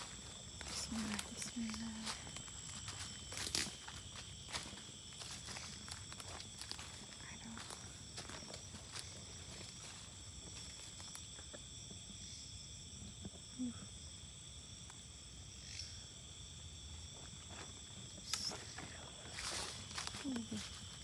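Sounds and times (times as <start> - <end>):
faint footstep crunches: 0.0 - 11.2
night insects chirring: 0.0 - 21.0.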